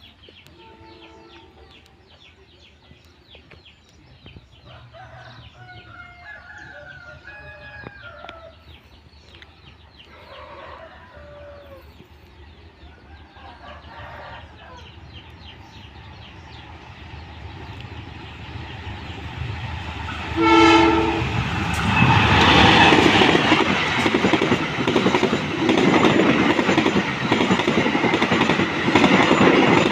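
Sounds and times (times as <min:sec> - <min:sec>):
roosters crowing: 0:04.7 - 0:08.6, 0:10.2 - 0:11.8, 0:13.2 - 0:15.2.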